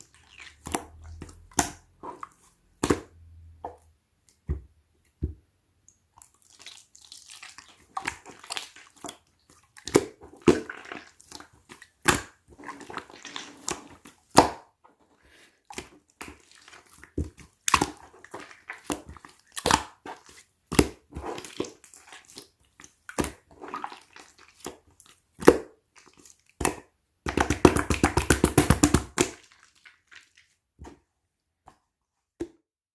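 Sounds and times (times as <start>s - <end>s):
slime squished with wet pops: 15.8s - 23.8s.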